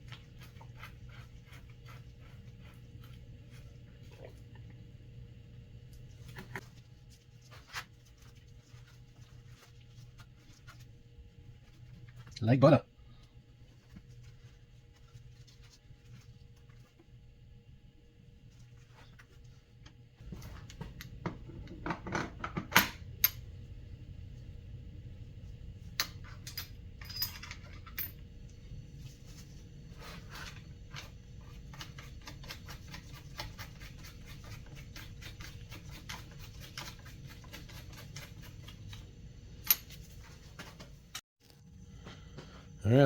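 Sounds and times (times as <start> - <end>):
low steady hum: 0.0 - 43.0
metal tools clinking: 26.0 - 28.2.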